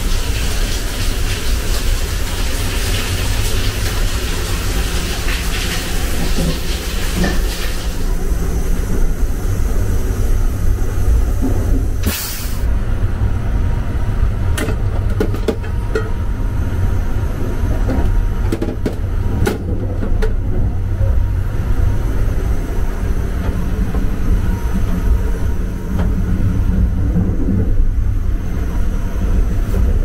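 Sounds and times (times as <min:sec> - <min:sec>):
train running low rumble: 0:00.0 - 0:30.0
short hiss: 0:12.0 - 0:12.7.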